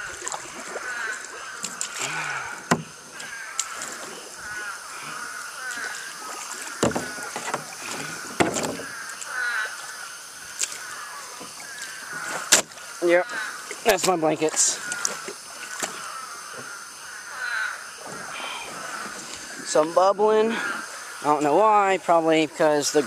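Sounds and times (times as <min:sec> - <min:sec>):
paddle knocking against canoe: 0:00.0 - 0:16.8
water sloshing around hull: 0:00.0 - 0:23.0.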